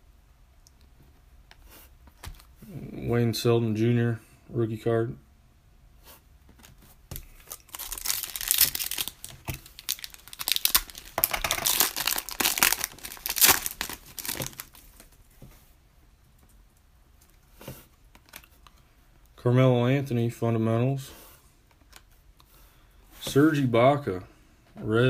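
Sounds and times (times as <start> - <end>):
foil wrapper tearing and crinkling: 7.2 - 15.1.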